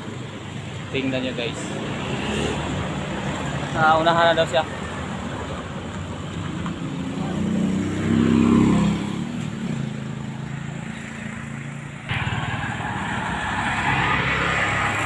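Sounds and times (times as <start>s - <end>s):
diesel truck engine revving: 7.0s - 15.0s
loud rushing noise: 12.0s - 15.0s.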